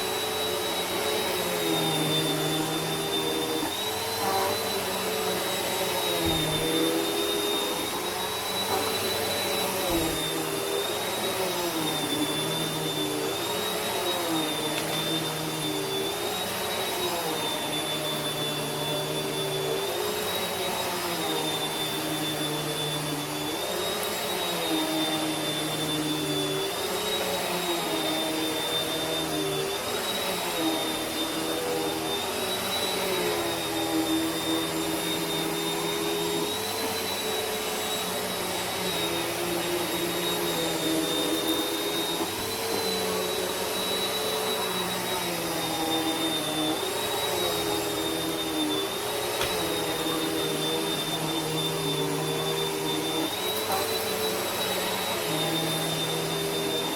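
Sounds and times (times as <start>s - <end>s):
vacuum cleaner running: 0.0s - 56.9s.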